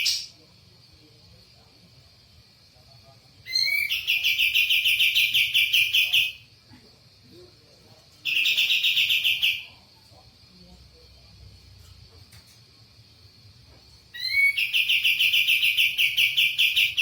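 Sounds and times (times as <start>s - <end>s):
songbird trilling: 0.0s - 0.3s.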